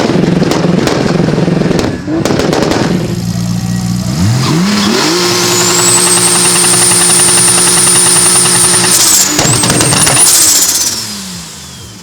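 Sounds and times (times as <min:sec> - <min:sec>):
car engine revving: 0:00.0 - 0:12.0
turbo whistle: 0:03.6 - 0:11.0.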